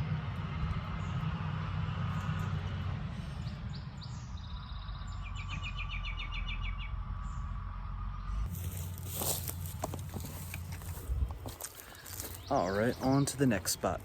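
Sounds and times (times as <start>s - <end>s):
low rumble: 0.0s - 13.2s
bird singing: 3.4s - 8.5s, 9.8s - 14.0s.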